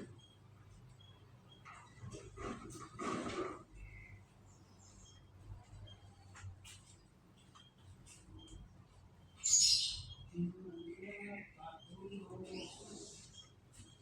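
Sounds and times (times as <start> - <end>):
canaries chirping: 7.4 - 14.0.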